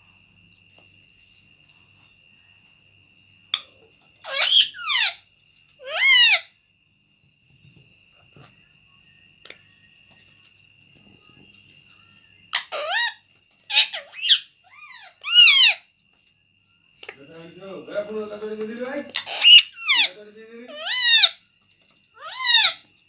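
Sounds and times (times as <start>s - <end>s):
parrot squawking: 4.2s - 5.2s, 5.8s - 6.6s, 12.5s - 15.9s, 18.9s - 21.4s, 22.2s - 22.9s.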